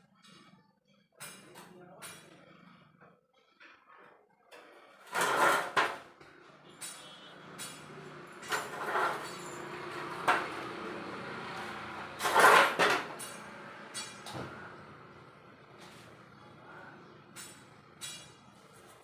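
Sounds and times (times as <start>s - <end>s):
handling scrapes and knocks: 4.7s - 6.3s, 6.9s - 14.6s.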